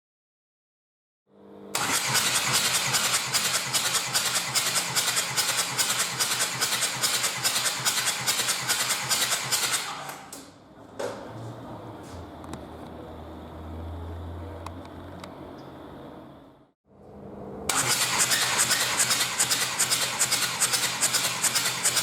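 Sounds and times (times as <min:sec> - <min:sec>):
starter cranking diesel engine: 0:01.7 - 0:10.2, 0:17.7 - 0:22.0.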